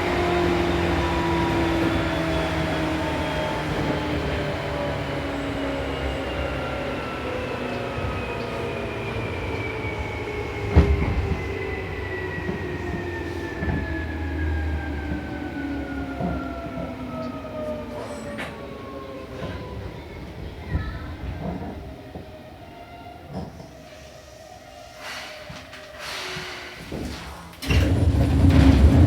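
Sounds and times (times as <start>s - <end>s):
train wheels clicking over rail joints: 25.1s - 29.0s.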